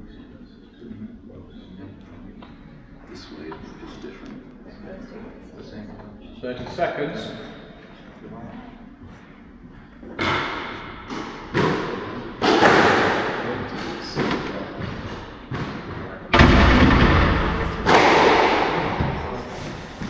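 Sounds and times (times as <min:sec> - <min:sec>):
squash ball hits ringing: 0:10.2 - 0:15.8, 0:17.8 - 0:19.6.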